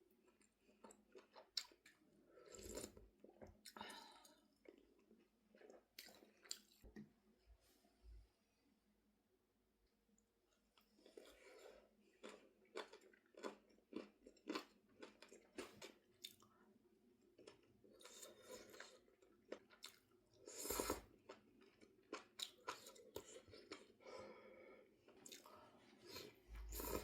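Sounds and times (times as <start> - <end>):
person chewing food: 0.0 - 7.0, 10.5 - 27.0.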